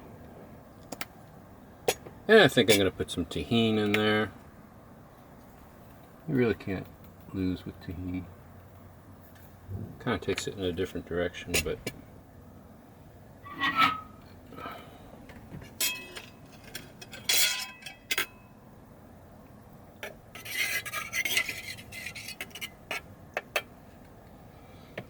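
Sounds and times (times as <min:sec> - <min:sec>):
scraping and stirring: 0:20.0 - 0:23.7.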